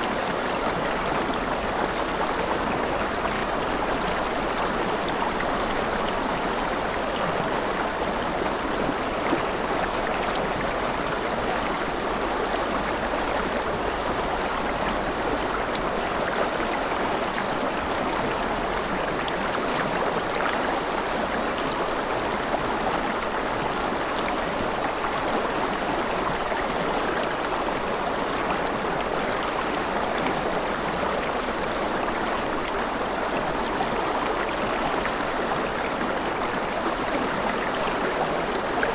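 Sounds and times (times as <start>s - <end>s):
river water flowing and splashing: 0.0s - 38.9s.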